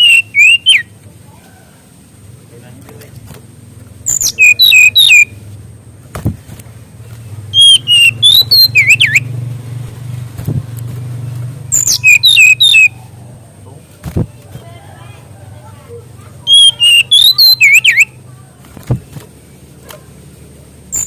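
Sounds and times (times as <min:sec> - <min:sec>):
songbird whistling: 0:00.0 - 0:00.9, 0:04.0 - 0:05.4, 0:07.5 - 0:09.4, 0:11.7 - 0:13.0, 0:16.4 - 0:18.2
steady low hum: 0:00.0 - 0:21.0.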